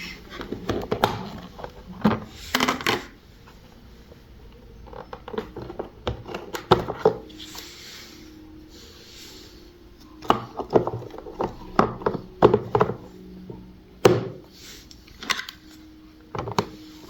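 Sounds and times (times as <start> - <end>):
hard plastic parts knocking: 0.3 - 3.2, 4.8 - 7.3, 10.2 - 14.5, 16.3 - 16.8.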